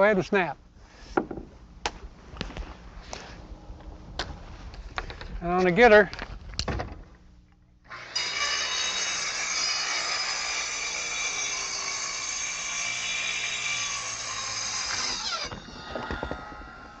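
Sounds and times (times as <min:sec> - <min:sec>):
circular saw cutting wood: 0:07.9 - 0:17.0.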